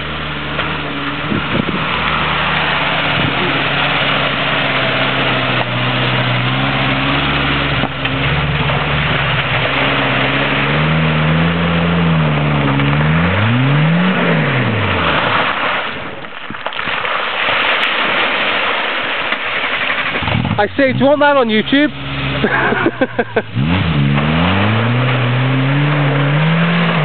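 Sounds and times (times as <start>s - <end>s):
car engine pulling under load: 0.0s - 27.0s.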